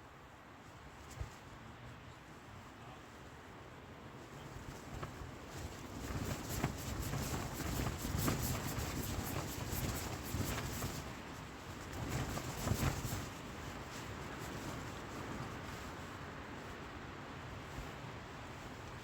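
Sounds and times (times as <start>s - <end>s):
wind gusts buffeting a tent: 0.0s - 19.0s
tent fabric crackling and flapping: 0.4s - 3.2s, 4.1s - 19.0s.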